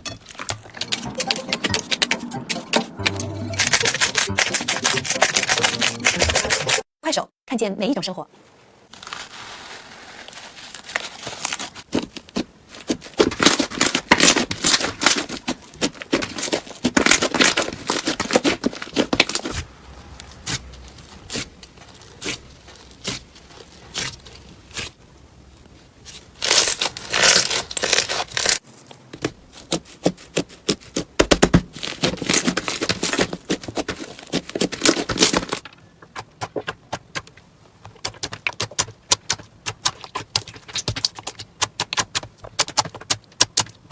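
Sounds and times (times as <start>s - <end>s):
crunchy slime crackling: 8.9s - 35.6s.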